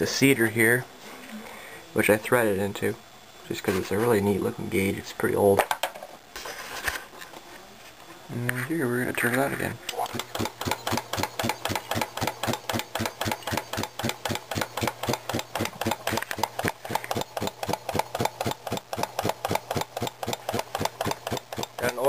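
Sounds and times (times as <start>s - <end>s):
electric motor humming: 9.9s - 22.0s
air compressor piston knocking: 10.1s - 22.0s.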